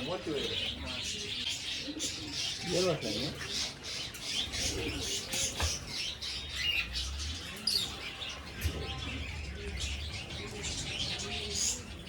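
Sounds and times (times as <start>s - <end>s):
pigeons cooing: 0.0s - 12.0s
small birds chirping: 0.0s - 12.0s.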